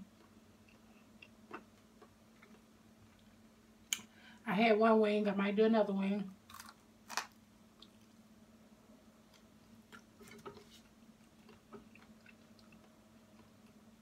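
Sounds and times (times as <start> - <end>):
low steady hum: 0.0 - 14.0
chewing with wet clicks and smacks: 9.9 - 13.8.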